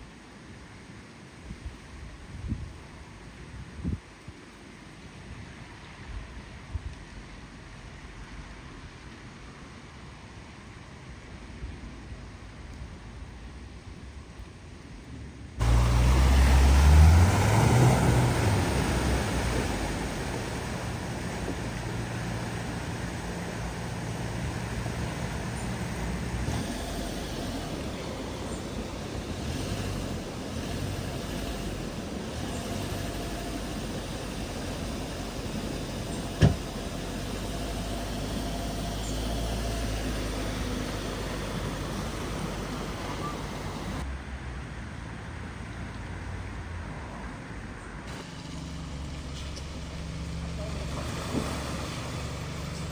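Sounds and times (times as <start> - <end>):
water rushing and splashing: 15.6 - 44.0, 48.1 - 52.9
low engine hum: 15.6 - 52.9.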